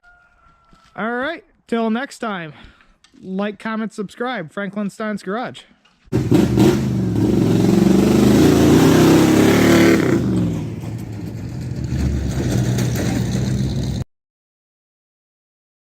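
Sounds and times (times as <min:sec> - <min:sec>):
car engine revving: 0:06.1 - 0:14.0.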